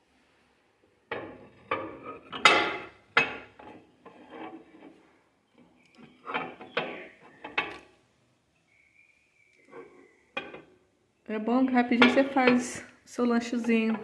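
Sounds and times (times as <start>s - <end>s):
ceramic mugs clunking and scraping: 1.0s - 8.0s, 9.6s - 10.9s, 11.8s - 14.0s.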